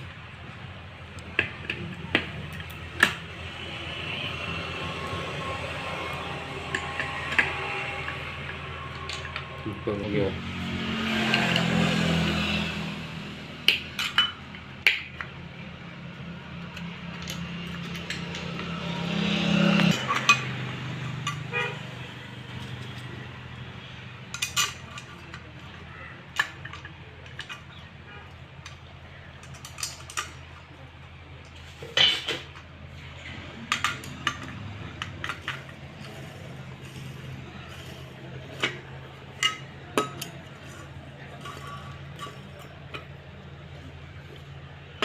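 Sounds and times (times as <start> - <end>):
metal tools clinking and tapping: 4.8 - 9.8, 13.6 - 15.4, 16.6 - 21.8, 22.5 - 23.3, 24.2 - 45.0.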